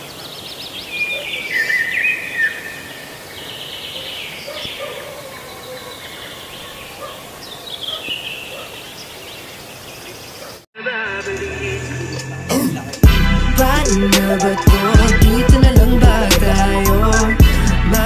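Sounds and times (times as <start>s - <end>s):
outdoor hiss: 0.0s - 4.9s
birds chattering trills: 0.0s - 18.0s.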